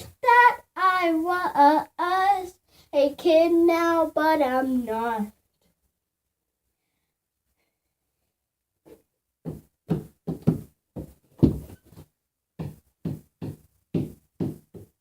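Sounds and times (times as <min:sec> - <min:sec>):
dull knocks: 0:09.4 - 0:12.0.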